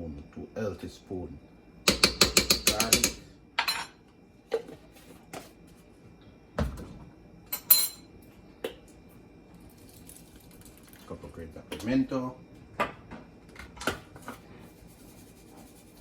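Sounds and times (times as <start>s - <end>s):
spoon clinking against pot: 1.9s - 3.9s.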